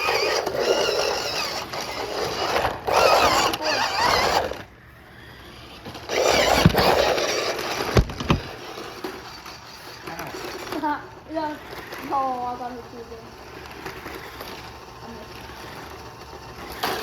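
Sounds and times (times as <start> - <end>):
rc car motors whirring: 0.0 - 17.0
toy cars bumping knocks: 5.8 - 10.9.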